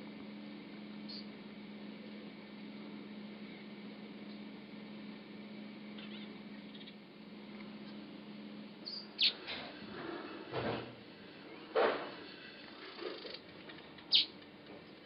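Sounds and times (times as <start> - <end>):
bird calling: 6.0 - 7.0, 8.8 - 9.5, 14.1 - 14.4.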